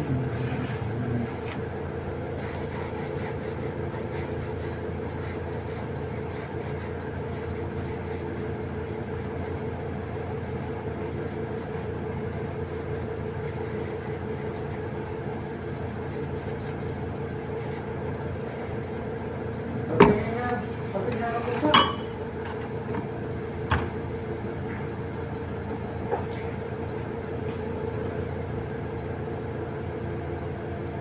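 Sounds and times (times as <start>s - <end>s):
machinery droning: 0.0s - 3.0s.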